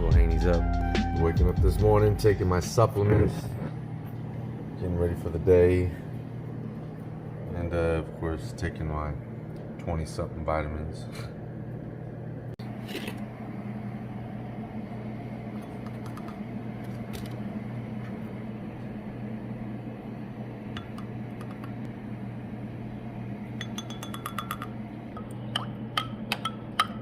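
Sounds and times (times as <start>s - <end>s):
steady low hum: 0.0s - 27.0s
containers clinking on counter: 23.6s - 24.8s.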